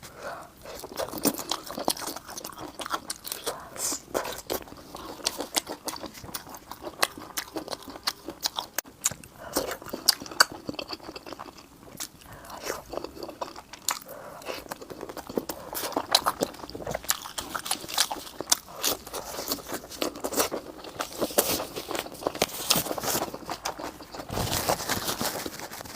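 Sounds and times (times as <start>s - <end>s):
person chewing crunchy food: 0.0s - 25.9s.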